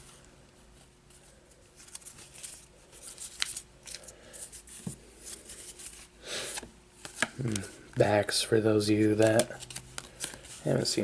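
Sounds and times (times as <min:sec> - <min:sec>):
trading cards rustling and sliding: 0:01.7 - 0:08.1, 0:08.8 - 0:11.0.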